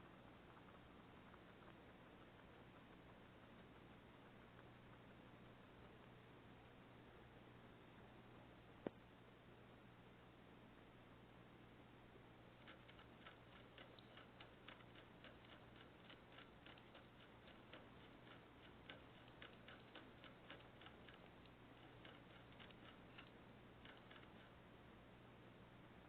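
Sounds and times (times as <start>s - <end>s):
faint clicking: 0.0s - 6.8s, 12.6s - 25.0s
steady low hum: 0.0s - 26.0s.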